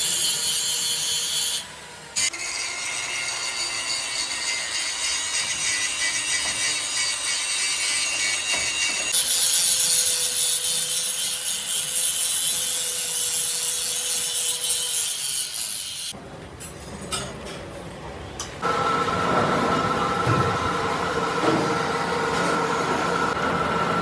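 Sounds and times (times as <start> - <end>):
rasping hiss of metal cutting: 0.0 - 16.1.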